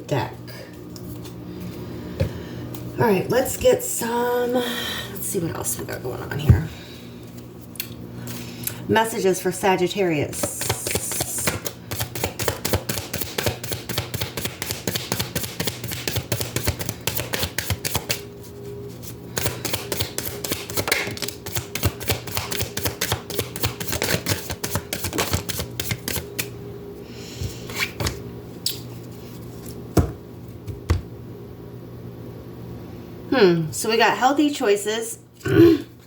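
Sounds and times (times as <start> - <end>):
cards being shuffled: 10.4 - 18.2, 19.0 - 26.5.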